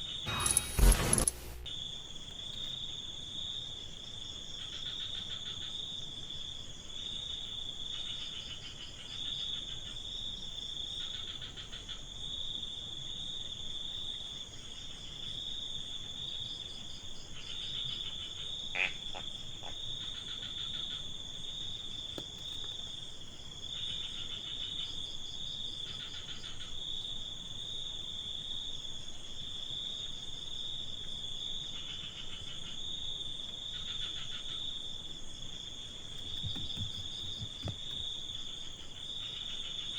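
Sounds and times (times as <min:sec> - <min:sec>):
crickets trilling: 0:00.0 - 0:39.9
brief sharp sound: 0:00.3 - 0:01.7.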